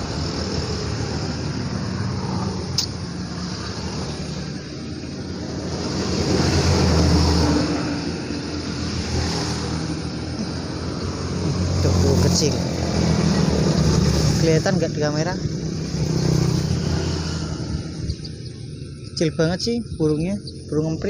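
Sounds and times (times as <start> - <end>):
traffic engine rumble: 0.0 - 21.0
vehicle passing: 0.0 - 21.0
sharp click: 2.7 - 3.0.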